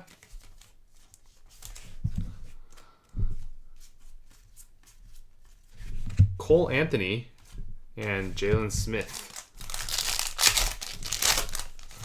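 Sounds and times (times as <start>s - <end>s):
cards clicking and rustling: 8.9s - 12.0s.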